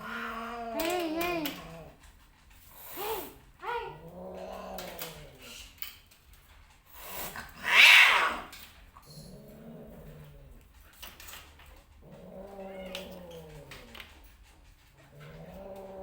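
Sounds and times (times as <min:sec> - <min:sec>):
cat screeching: 0:00.0 - 0:01.9, 0:07.6 - 0:08.6, 0:12.3 - 0:13.8
cats yowling and growling: 0:00.0 - 0:05.9, 0:07.1 - 0:16.0.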